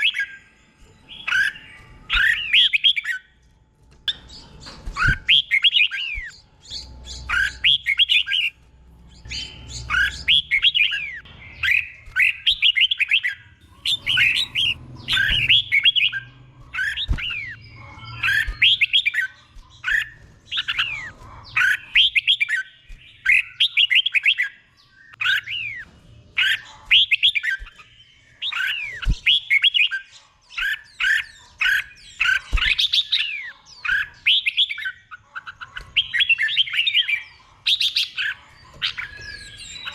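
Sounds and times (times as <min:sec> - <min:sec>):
bulbul singing whistled notes: 0:05.0 - 0:21.0.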